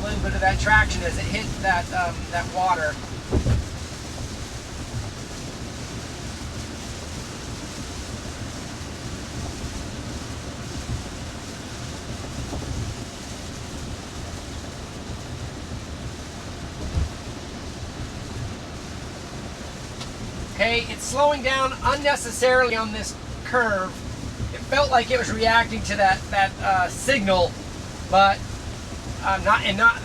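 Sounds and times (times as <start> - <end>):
heavy rain: 0.0 - 30.0
low road rumble: 0.0 - 30.0
tyre spray on wet road: 0.0 - 30.0
brief low thumps: 3.0 - 3.8, 16.8 - 17.2.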